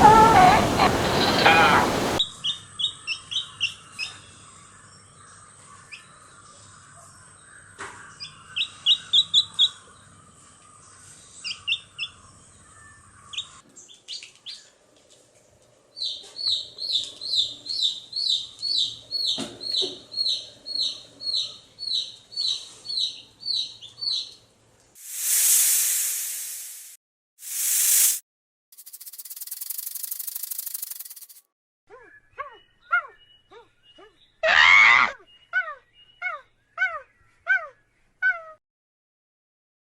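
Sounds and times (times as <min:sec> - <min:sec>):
bird chirping: 0:00.0 - 0:04.2, 0:16.0 - 0:24.4, 0:28.8 - 0:34.4.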